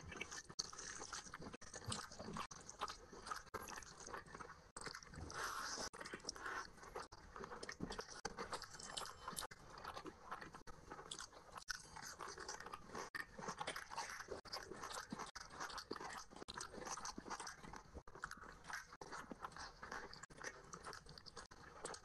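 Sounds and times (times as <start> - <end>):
chewing and crunching food: 0.0 - 22.0.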